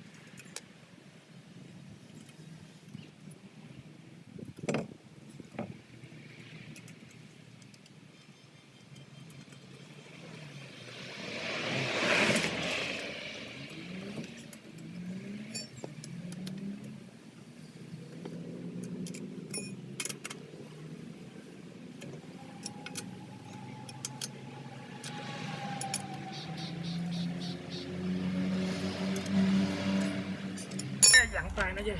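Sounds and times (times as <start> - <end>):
vehicle noise: 0.0 - 31.9
whoosh: 10.8 - 14.2
lug nuts clinking on wheel studs: 13.7 - 17.0, 17.7 - 20.9, 30.0 - 31.3.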